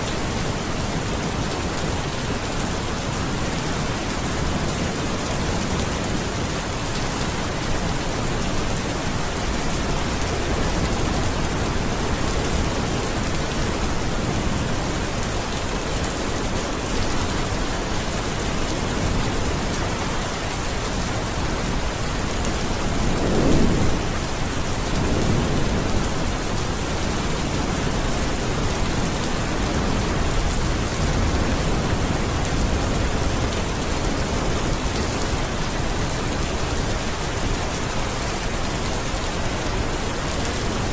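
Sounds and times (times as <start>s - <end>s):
steady rain falling: 0.0s - 40.9s
low rumble of thunder: 20.9s - 37.8s.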